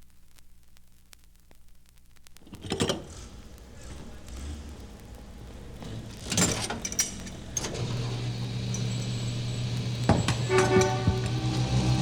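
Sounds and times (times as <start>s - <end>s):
rattle of clicks: 6.0s - 7.8s
motor humming: 7.3s - 12.0s
horn-like pitched tone: 10.2s - 12.0s.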